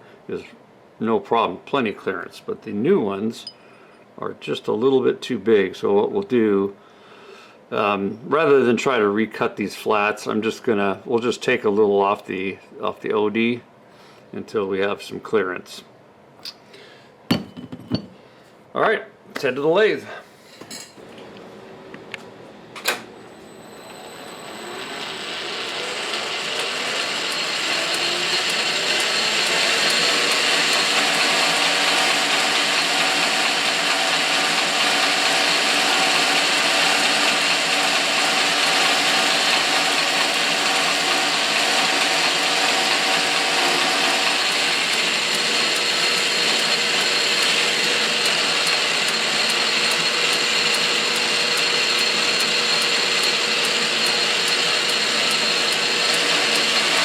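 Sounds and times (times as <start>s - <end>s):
metal lathe motor running: 23.6s - 57.0s
lathe clicks: 26.4s - 57.0s.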